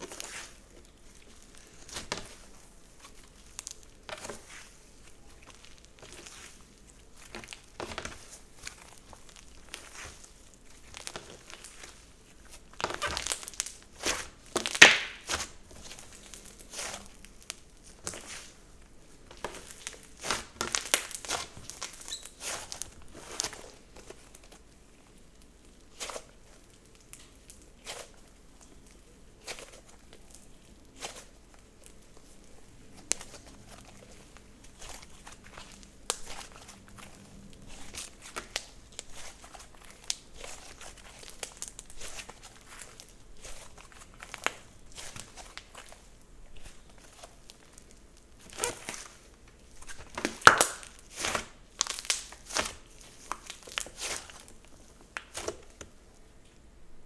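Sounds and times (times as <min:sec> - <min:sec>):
slime squished by hand: 0:19.4 - 0:24.4, 0:32.8 - 0:55.8.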